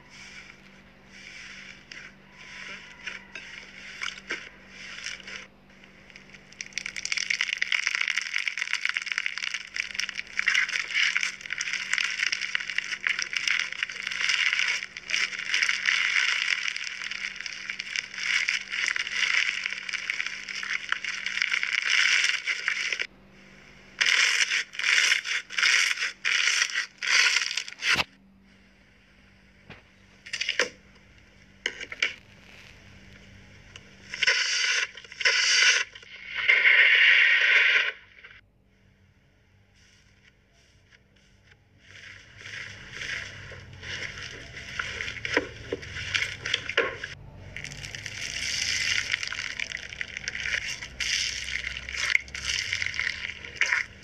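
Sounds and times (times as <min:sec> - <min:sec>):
slime squishes: 0:01.1 - 0:23.1, 0:23.9 - 0:28.1, 0:39.8 - 0:54.0
slime crackling and popping: 0:02.0 - 0:23.1, 0:24.0 - 0:28.1, 0:34.1 - 0:38.0, 0:41.8 - 0:54.0.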